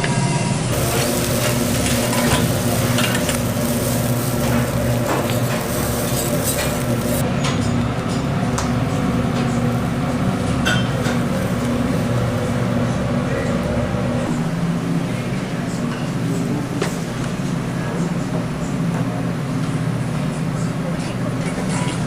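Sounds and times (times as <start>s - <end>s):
food sizzling on a grill: 0.6s - 7.2s, 8.8s - 13.1s
metal utensils clinking and scraping: 0.7s - 8.3s.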